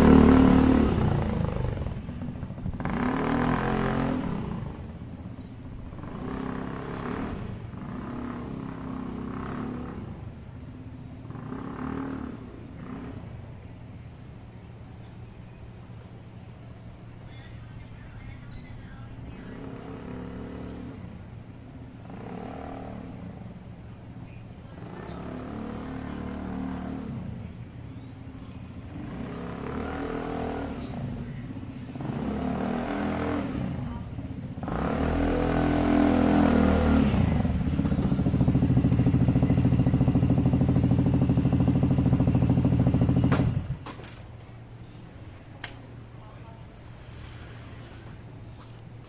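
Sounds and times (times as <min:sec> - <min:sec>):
scooter engine running: 0:00.0 - 0:13.7, 0:19.4 - 0:44.0.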